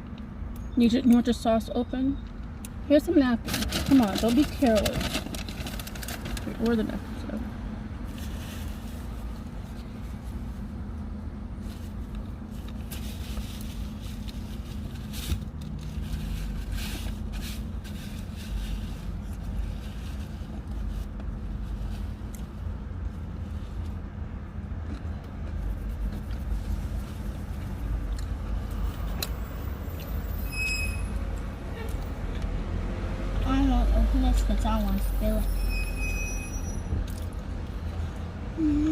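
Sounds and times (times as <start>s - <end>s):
paper packaging rustling: 3.5s - 7.0s.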